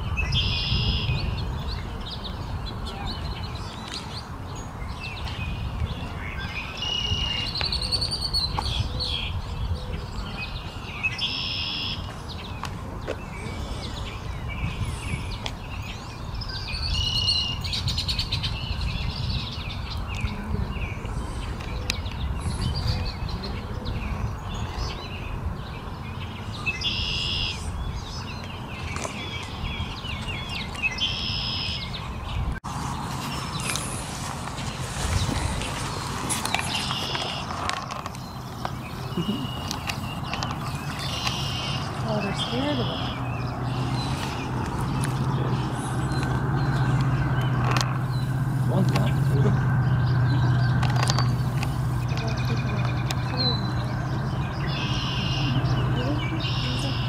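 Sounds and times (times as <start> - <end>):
small birds chirping and singing: 0.0 - 57.0
steady low rumble: 31.9 - 57.0.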